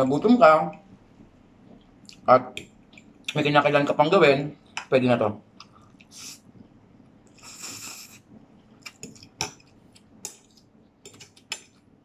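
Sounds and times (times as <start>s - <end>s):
person chewing noodles: 7.3s - 11.9s
fork clicking on plate: 8.9s - 11.8s.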